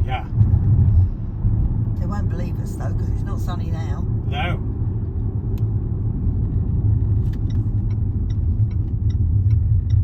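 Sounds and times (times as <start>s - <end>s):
road and engine rumble: 0.0s - 10.0s
turn indicator ticking: 7.2s - 10.0s.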